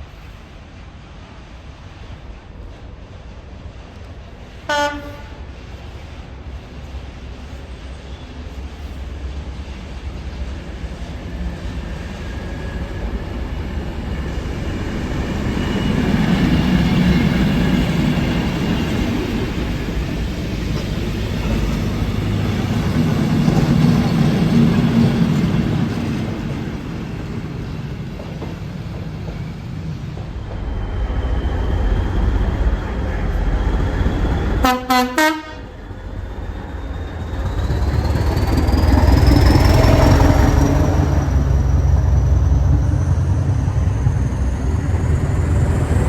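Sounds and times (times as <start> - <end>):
train rumbling past: 0.0 - 46.0.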